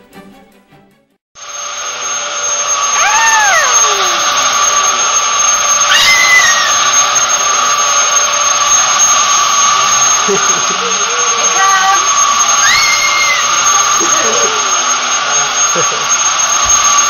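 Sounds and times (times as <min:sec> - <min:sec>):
vacuum cleaner running: 0:01.4 - 0:17.0.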